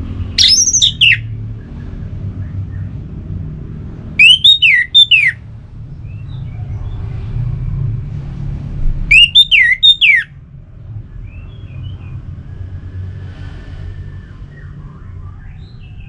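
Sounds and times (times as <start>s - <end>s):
thrush singing whistles: 0.3s - 2.9s, 4.2s - 5.4s, 9.1s - 10.4s.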